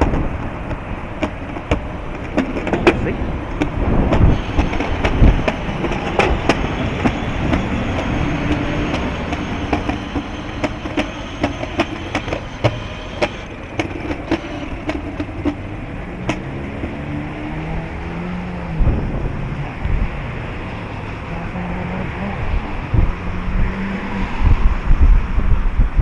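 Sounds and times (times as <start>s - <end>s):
sharp clicks and rattles: 0.0s - 16.9s
wind rumbling on microphone: 0.0s - 26.0s.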